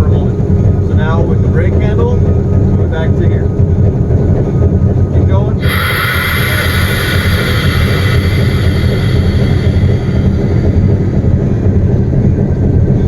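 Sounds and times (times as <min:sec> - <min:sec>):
hiss: 0:05.6 - 0:11.6
locomotive engine rumbling: 0:05.6 - 0:12.3.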